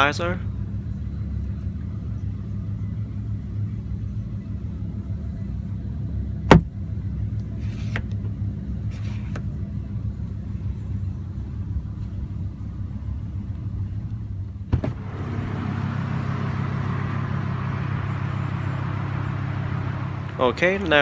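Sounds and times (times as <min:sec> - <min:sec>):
car engine idling: 0:00.0 - 0:21.0
scraping rustles: 0:07.6 - 0:08.1.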